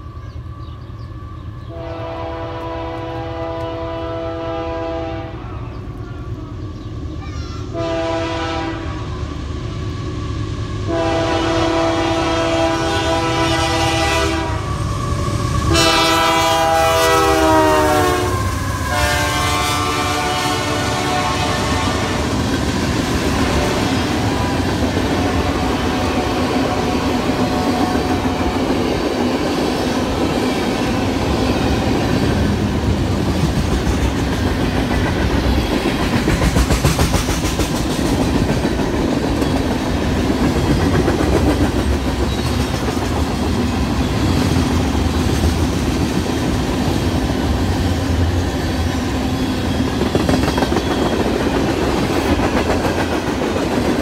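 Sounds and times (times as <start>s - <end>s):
train rumbling past: 0.0s - 54.0s
locomotive horn: 1.7s - 5.7s, 7.7s - 9.2s, 10.9s - 14.8s, 15.6s - 22.4s, 23.3s - 24.6s, 25.2s - 28.2s.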